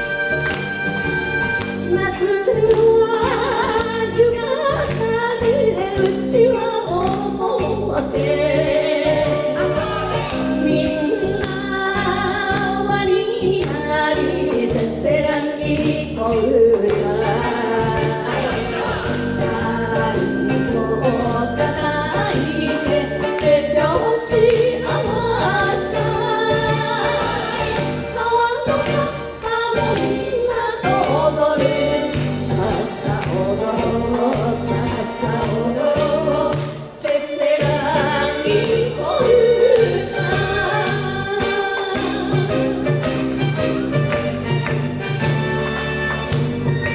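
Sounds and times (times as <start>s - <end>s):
band with horn section: 0.0s - 2.0s, 37.9s - 46.9s
women singing: 1.7s - 43.6s.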